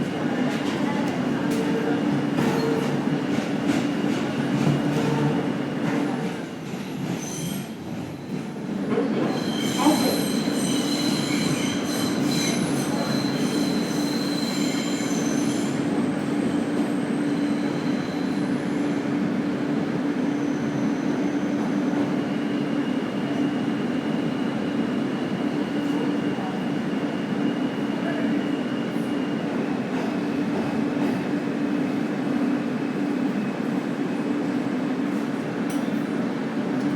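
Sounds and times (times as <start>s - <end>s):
subway train rumbling on track: 0.0s - 36.9s
shrill wheel squeal: 7.1s - 7.8s, 9.2s - 19.0s, 20.2s - 22.1s.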